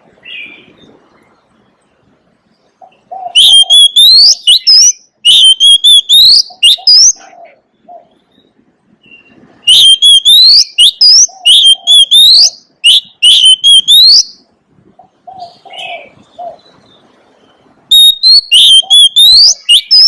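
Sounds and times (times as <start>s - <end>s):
bird singing whistled notes: 2.8s - 7.2s, 8.0s - 14.5s, 15.3s - 20.0s.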